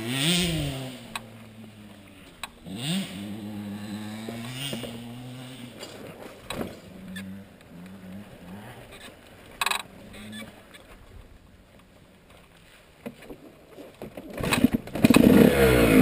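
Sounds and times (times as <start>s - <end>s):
dirt bike engine idling: 0.0s - 12.3s.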